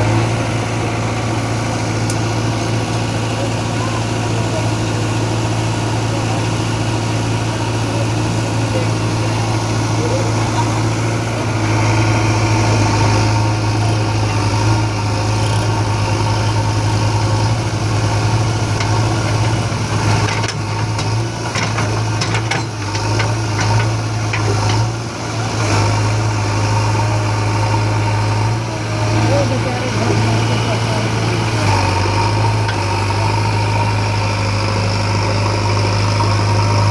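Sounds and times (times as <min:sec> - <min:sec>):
diesel tractor engine idling: 0:00.0 - 0:36.9.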